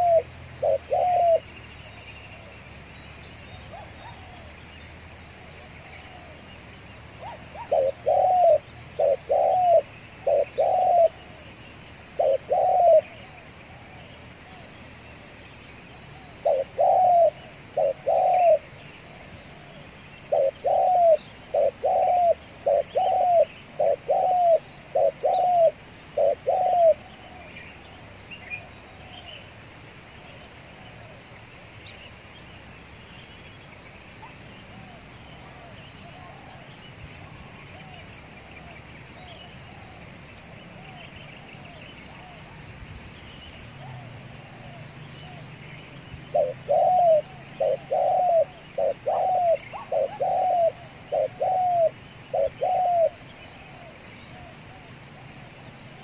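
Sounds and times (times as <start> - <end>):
dove cooing: 0.0 - 1.5, 3.7 - 4.5, 7.2 - 11.4, 12.1 - 14.7, 16.1 - 27.6, 46.3 - 54.9.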